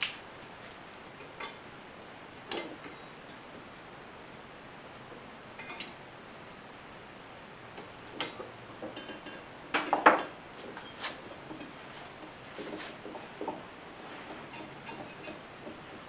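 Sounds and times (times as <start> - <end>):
metal tools clinking and clanking: 14.4 - 15.4.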